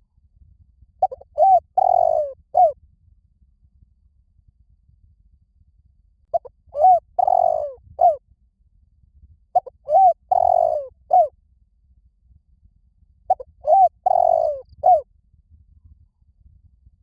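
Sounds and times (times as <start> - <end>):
dove cooing: 1.0 - 2.8, 6.3 - 8.2, 9.6 - 11.3, 13.3 - 15.0.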